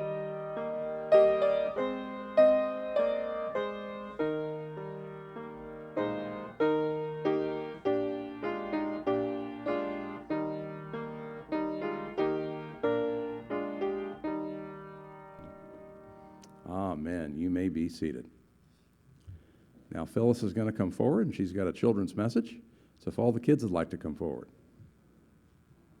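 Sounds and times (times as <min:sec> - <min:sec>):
piano playing hymn chords: 0:00.0 - 0:17.0.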